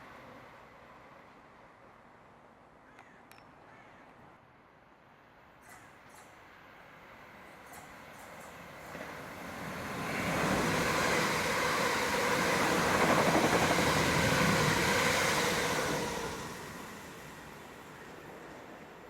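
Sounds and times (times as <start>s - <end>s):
train passing: 6.2s - 19.0s.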